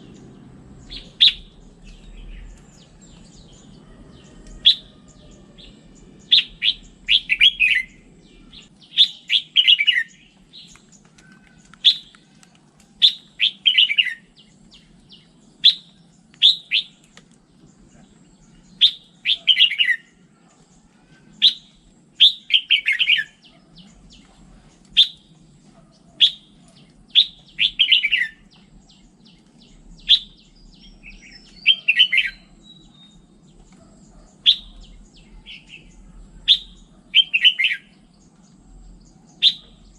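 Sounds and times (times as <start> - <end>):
bird singing sharp chirps: 0.0 - 12.1, 13.0 - 17.0, 21.3 - 24.2, 26.2 - 33.4, 34.0 - 38.4, 39.0 - 39.9
faint low hum: 0.0 - 39.9.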